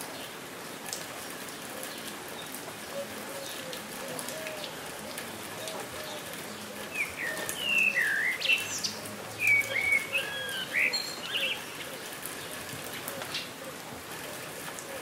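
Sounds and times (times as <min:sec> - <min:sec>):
steady rain falling: 0:00.0 - 0:15.0
bird singing whistled phrases: 0:07.0 - 0:11.4.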